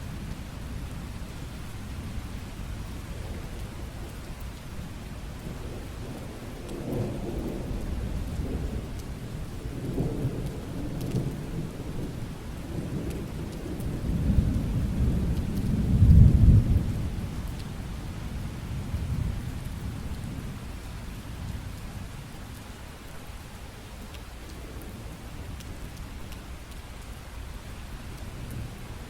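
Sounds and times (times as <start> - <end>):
steady rain: 0.0 - 29.0
rolling thunder: 5.4 - 17.5.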